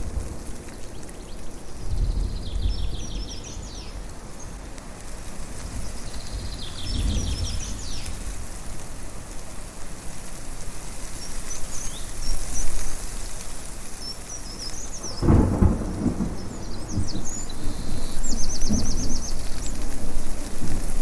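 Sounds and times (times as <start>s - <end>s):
thunder rumble: 0.0s - 4.4s, 5.6s - 8.6s, 14.9s - 21.0s
songbirds chirping: 0.0s - 8.4s, 10.9s - 21.0s.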